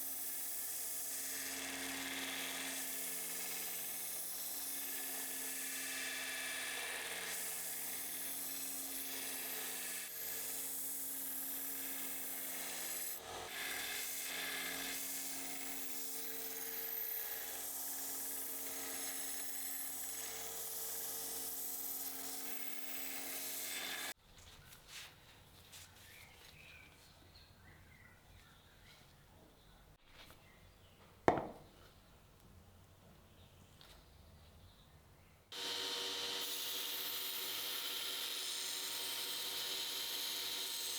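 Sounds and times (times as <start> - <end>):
power tool abrading metal: 0.0 - 24.2, 35.5 - 40.9.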